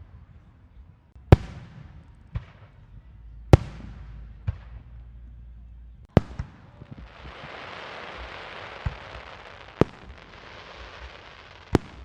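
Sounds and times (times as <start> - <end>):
fireworks crackling hiss: 6.6 - 12.0.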